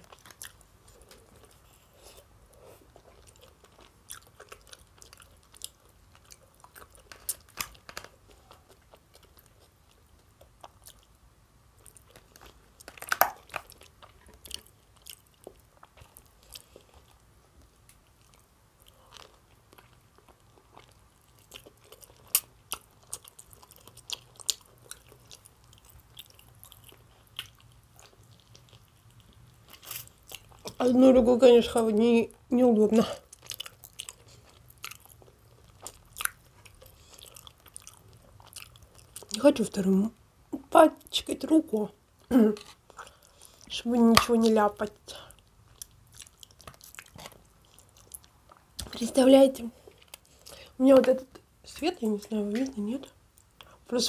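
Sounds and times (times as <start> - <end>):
person chewing food: 0.0 - 30.8, 33.0 - 39.4, 42.1 - 49.0, 49.8 - 51.5, 53.1 - 53.9.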